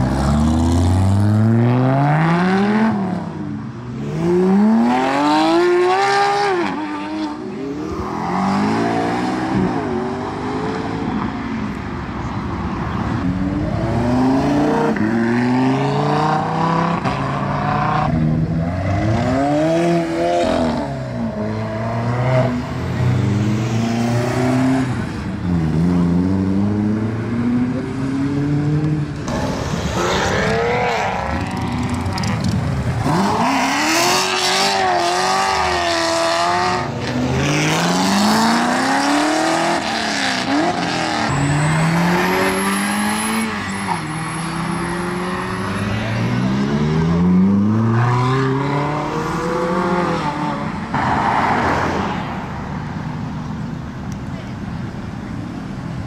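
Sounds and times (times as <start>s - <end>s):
car engines accelerating through gears: 13.5s - 52.1s.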